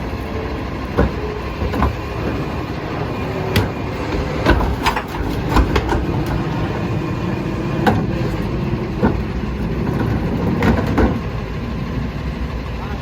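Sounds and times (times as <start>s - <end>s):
garbage truck engine rumble: 0.0s - 13.0s
sharp knocks and clanks: 3.4s - 6.8s.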